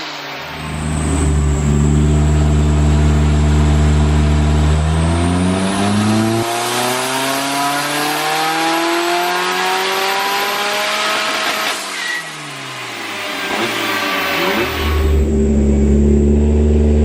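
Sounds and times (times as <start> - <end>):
turbocharged engine revving under load: 0.0 - 11.8, 13.3 - 17.0.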